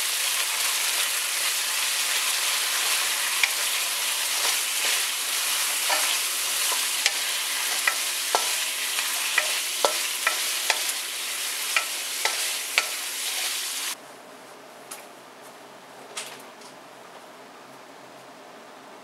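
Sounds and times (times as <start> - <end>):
chicken wings sizzling in oil: 0.0 - 14.0.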